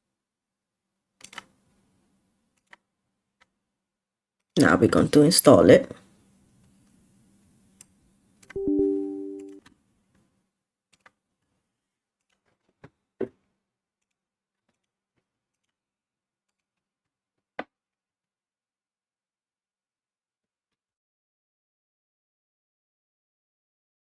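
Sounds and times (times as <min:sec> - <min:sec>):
computer mouse clicks: 0:01.2 - 0:01.5
computer alert chime: 0:08.6 - 0:09.6.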